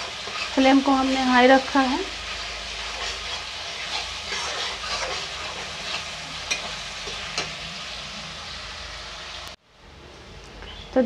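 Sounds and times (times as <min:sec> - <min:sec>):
metal spatula scraping pan: 0:00.0 - 0:08.1
onion sizzling in oil: 0:00.0 - 0:09.6.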